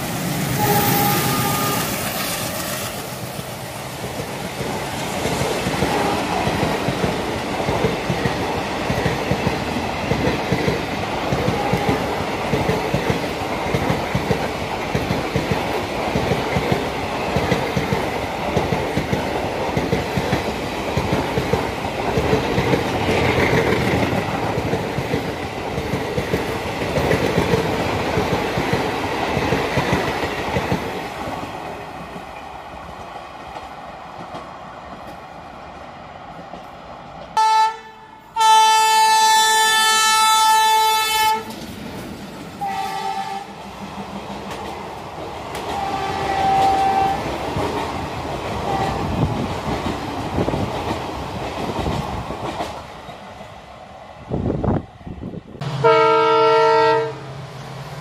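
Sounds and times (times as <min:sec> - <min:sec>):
multi-tone locomotive horn: 0:00.5 - 0:02.9, 0:05.8 - 0:06.7, 0:11.4 - 0:12.2, 0:37.4 - 0:41.6, 0:42.6 - 0:43.6, 0:45.7 - 0:47.3, 0:48.7 - 0:49.1, 0:55.6 - 0:57.4.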